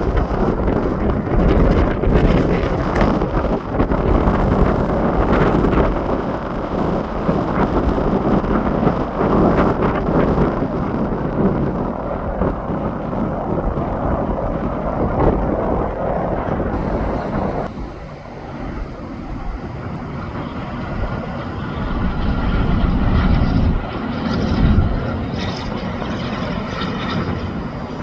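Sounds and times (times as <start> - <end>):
highway traffic passing: 16.5 - 23.7.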